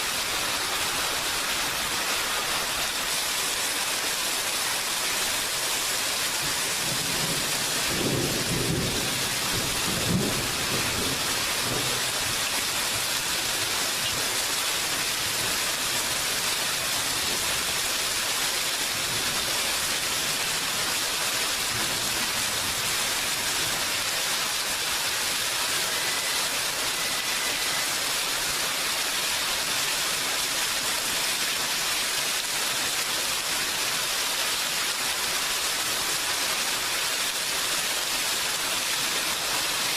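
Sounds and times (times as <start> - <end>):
steady rain: 0.0 - 39.9
thunder rumbling: 6.7 - 12.5.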